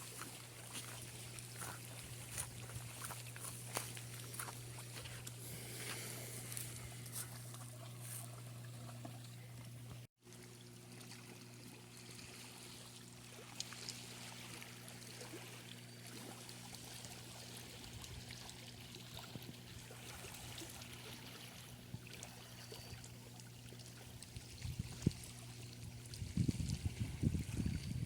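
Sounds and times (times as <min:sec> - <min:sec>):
low hum: 0:00.0 - 0:18.1
water trickling and lapping: 0:00.0 - 0:28.0.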